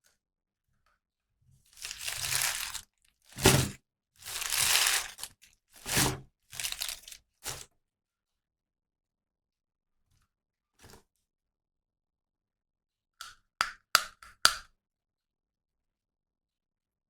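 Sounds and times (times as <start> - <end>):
packaging crinkled by hand: 1.7 - 7.6.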